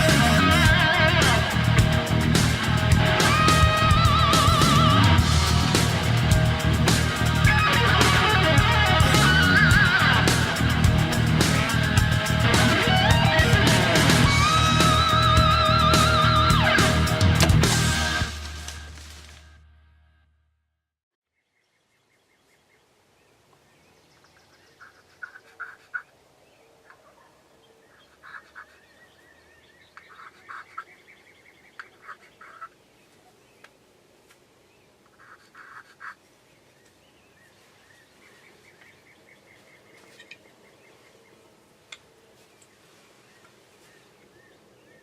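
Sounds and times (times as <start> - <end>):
faint birdsong: 21.2 - 45.0
distant turkeys gobbling: 24.8 - 26.1, 26.8 - 28.8, 30.0 - 31.0, 31.7 - 32.8, 35.0 - 36.2.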